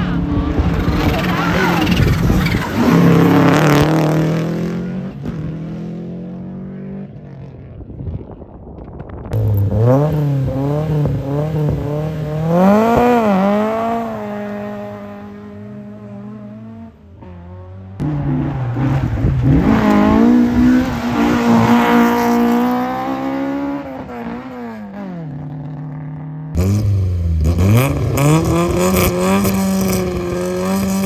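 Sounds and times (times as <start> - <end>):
rally car engine revving: 0.0 - 7.6, 9.3 - 31.0
rally car engine passing: 9.4 - 31.0.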